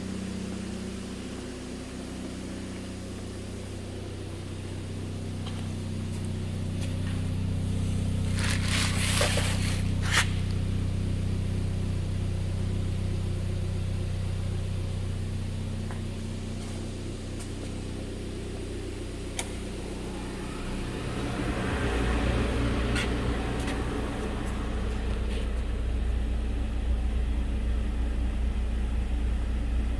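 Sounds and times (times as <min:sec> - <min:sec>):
car engine idling: 0:00.0 - 0:29.9
scraping rustle: 0:08.3 - 0:10.6.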